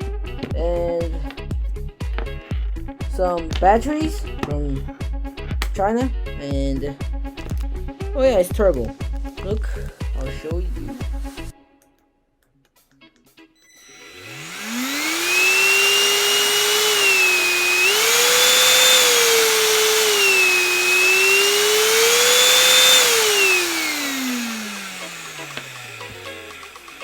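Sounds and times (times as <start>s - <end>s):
electric fan high whine: 13.7s - 27.0s.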